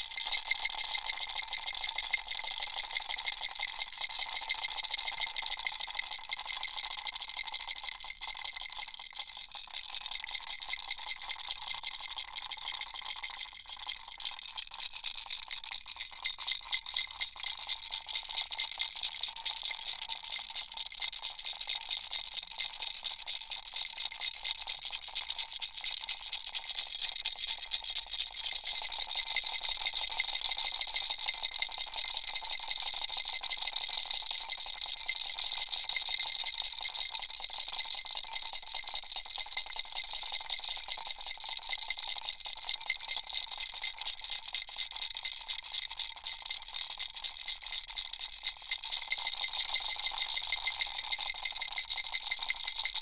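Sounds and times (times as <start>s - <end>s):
toy rattle shaken: 26.8s - 53.0s.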